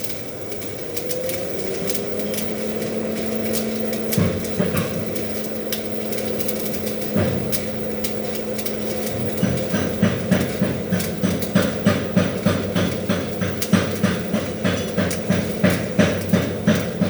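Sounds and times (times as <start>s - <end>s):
steady low hum: 0.0s - 17.0s
welding arc crackling: 0.0s - 17.0s.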